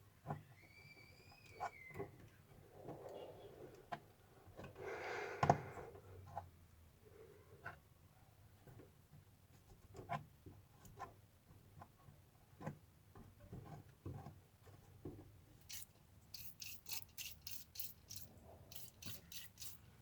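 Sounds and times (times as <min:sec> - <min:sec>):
short rubbing strokes: 0:15.7 - 0:19.9.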